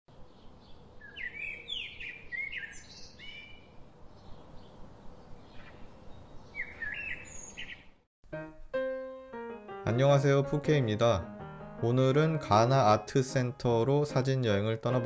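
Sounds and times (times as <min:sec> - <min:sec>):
birds chirping: 0:00.1 - 0:08.0.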